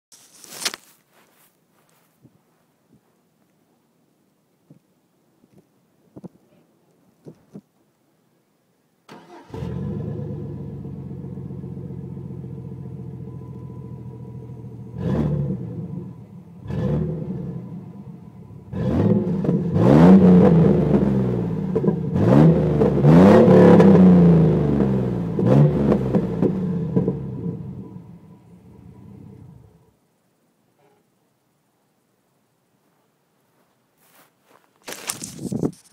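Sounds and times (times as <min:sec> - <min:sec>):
truck engine idling and revving: 0:09.3 - 0:29.8.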